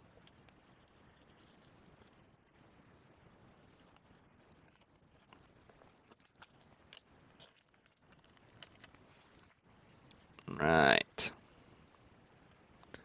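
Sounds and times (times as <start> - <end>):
trading cards clicking and rustling: 4.5 - 9.7.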